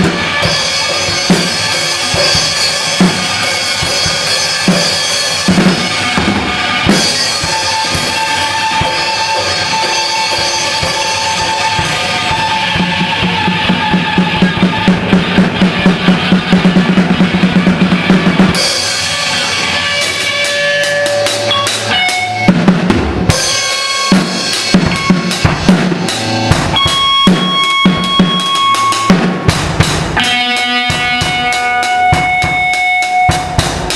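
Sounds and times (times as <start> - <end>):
band playing: 0.0 - 33.9
bass drum and snare hits: 22.1 - 30.3.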